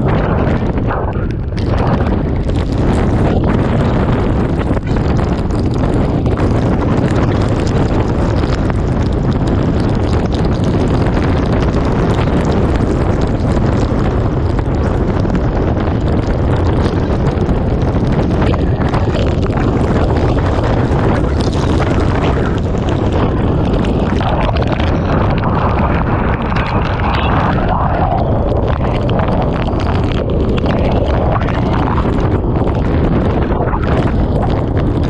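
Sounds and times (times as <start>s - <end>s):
strong wind buffeting microphone: 0.0s - 35.0s.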